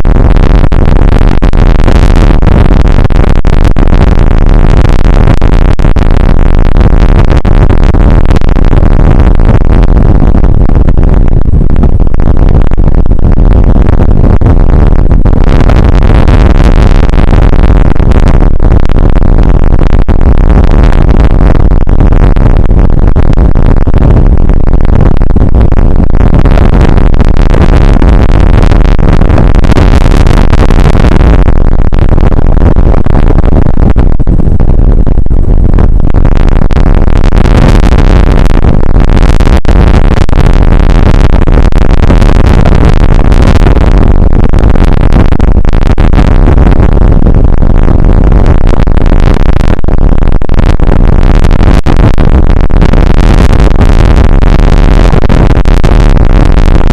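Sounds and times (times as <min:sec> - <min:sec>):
distorted rain noise: 0:00.0 - 0:56.9.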